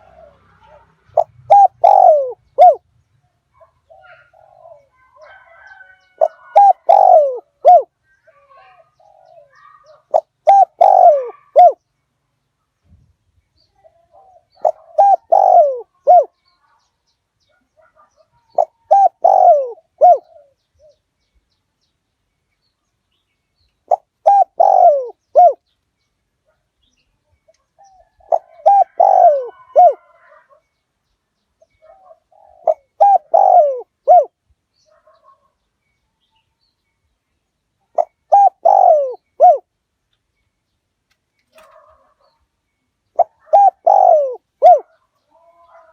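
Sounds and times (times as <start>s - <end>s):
dove cooing: 0.0s - 2.8s, 3.6s - 11.8s, 13.8s - 16.4s, 17.8s - 21.0s, 23.9s - 25.6s, 27.8s - 30.7s, 31.6s - 35.5s, 37.9s - 39.7s, 41.6s - 42.4s, 43.1s - 45.9s.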